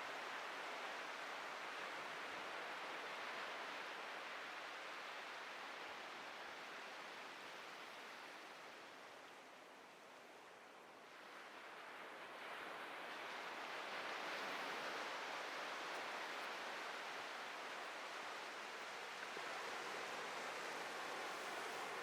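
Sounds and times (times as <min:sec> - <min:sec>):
ocean surf breaking on beach: 0:11.7 - 0:22.0.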